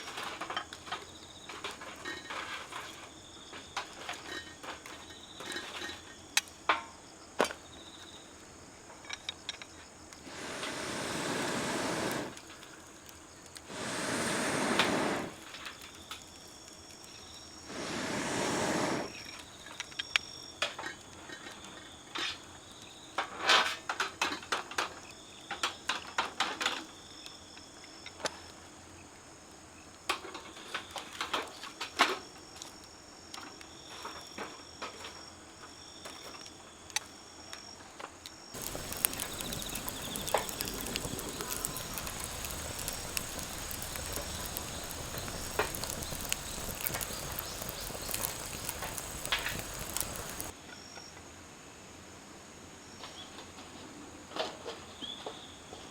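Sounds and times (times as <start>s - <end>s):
faint insect trill: 0.0s - 17.8s, 18.5s - 23.4s, 38.4s - 51.2s
fire hissing: 10.1s - 19.4s, 38.6s - 50.6s
wood fire crackling and popping: 10.2s - 19.2s, 38.6s - 50.6s.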